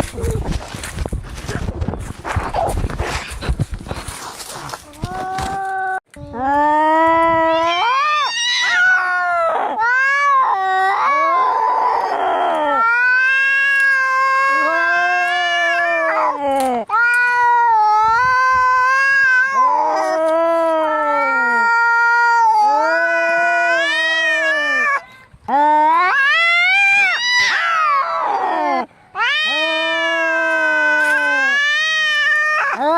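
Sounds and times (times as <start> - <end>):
cats yowling in a fight: 7.3 - 25.0, 25.6 - 32.9.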